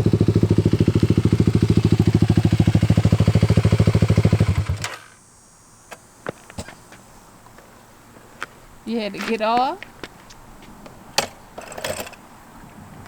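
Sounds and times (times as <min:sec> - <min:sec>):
dirt bike engine idling: 0:00.0 - 0:05.3.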